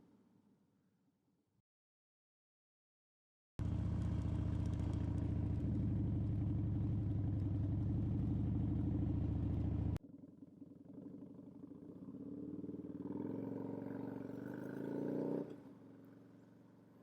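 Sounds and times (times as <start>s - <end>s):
motorcycle engine running at low revs: 3.6s - 17.0s.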